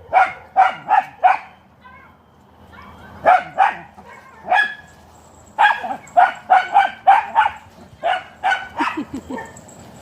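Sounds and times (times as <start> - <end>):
dog barking: 0.0 - 1.6, 3.2 - 4.9, 5.6 - 9.5.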